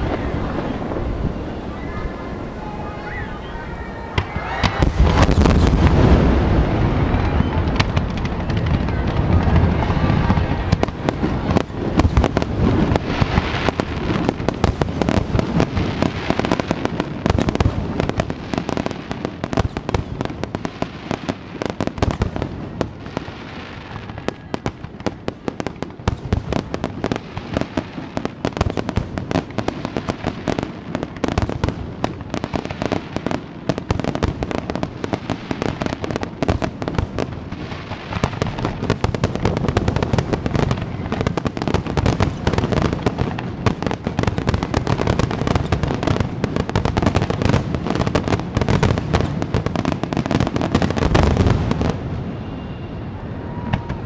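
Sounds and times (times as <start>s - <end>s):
firework shells booming: 0.0s - 23.0s
firework crackle: 0.0s - 54.0s.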